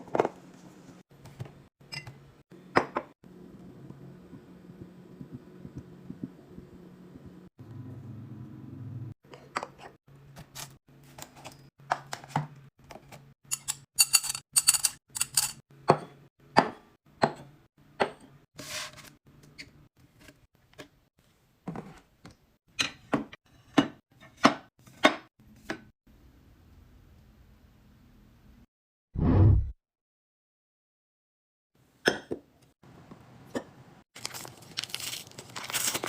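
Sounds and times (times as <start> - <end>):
low hum: 3.3 - 9.1
plastic crinkling: 34.2 - 36.0.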